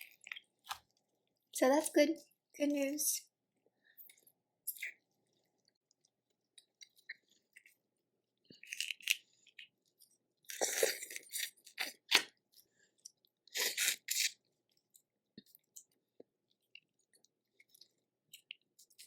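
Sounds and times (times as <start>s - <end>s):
chewing: 0.0s - 1.5s, 3.9s - 7.8s, 8.4s - 19.0s.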